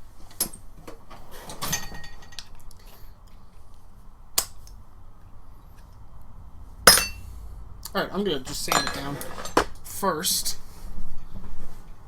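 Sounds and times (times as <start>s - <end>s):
metal tools clattering on workbench: 1.5s - 2.5s, 8.6s - 9.7s.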